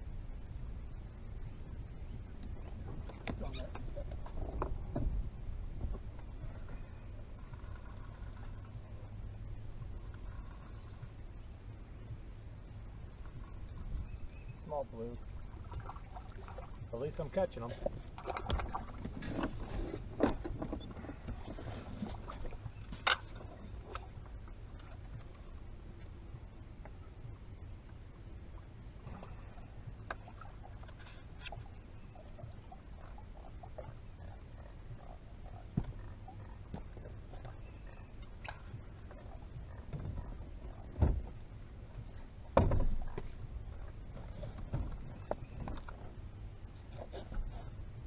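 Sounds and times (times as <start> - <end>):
wind and water rumble: 0.0 - 48.0
dull thumps: 42.5 - 43.4.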